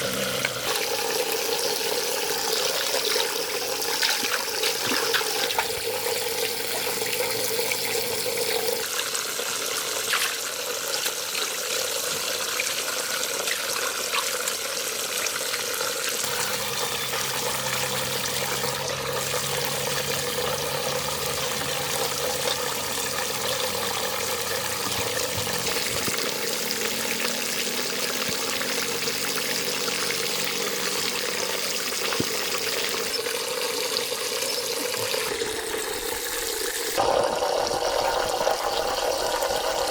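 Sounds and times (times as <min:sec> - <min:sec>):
running water rushing: 0:00.0 - 0:15.6, 0:16.2 - 0:39.9.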